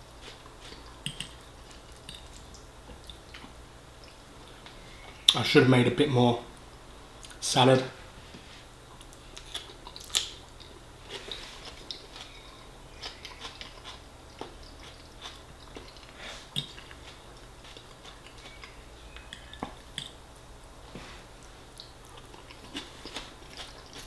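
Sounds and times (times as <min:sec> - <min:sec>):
close chewing with mouth clicks: 0:00.2 - 0:04.2, 0:08.9 - 0:20.2, 0:21.4 - 0:24.0.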